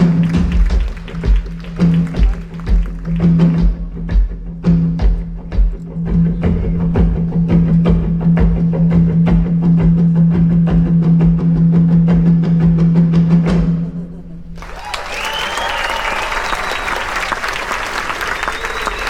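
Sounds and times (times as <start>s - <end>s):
fast sharp percussion strikes: 0.0s - 17.9s
held low note: 5.0s - 16.8s.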